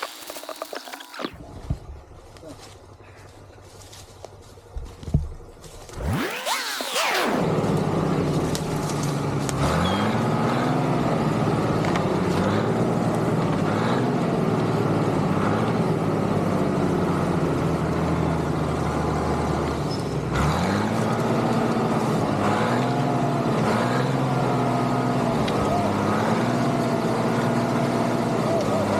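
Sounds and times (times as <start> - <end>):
tractor engine revving under load: 5.9 - 28.9.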